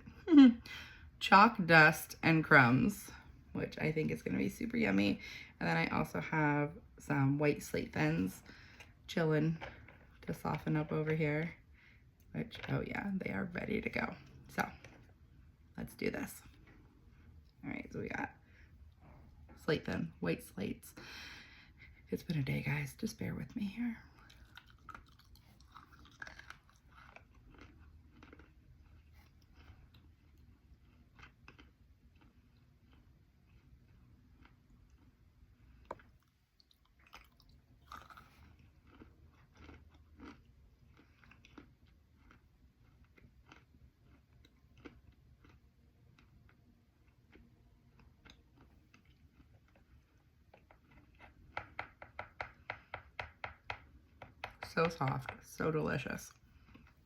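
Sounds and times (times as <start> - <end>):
chewing with crunches: 24.0 - 51.8, 56.2 - 57.0.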